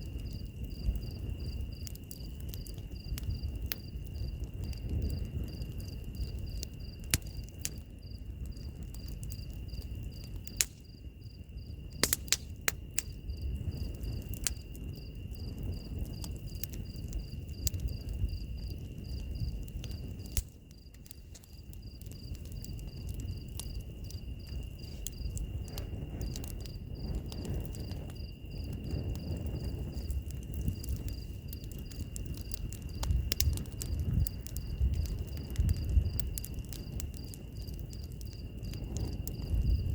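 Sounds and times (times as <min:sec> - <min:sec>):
insects trilling: 0:00.0 - 0:39.9
low rumble of flames: 0:00.0 - 0:39.9
pulsing insect chirp: 0:00.0 - 0:39.9
sharp pops from fire: 0:00.0 - 0:39.9
wood fire crackling: 0:00.0 - 0:39.9.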